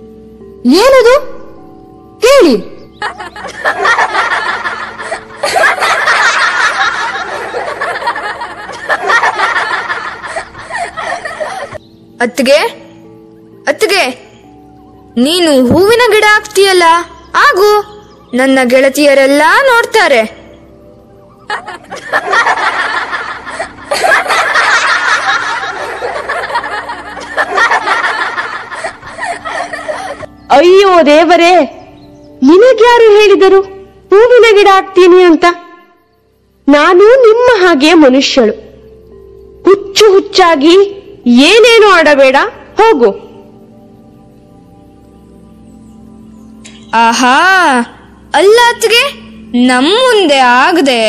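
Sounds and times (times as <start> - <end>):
girls laughing and chattering: 2.9 - 11.9, 21.2 - 30.5.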